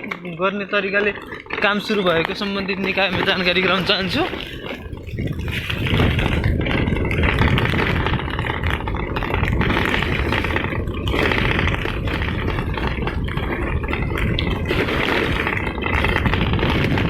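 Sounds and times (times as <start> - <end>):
rattling and scraping: 0.0 - 17.0
vehicle on rough road: 0.0 - 17.0.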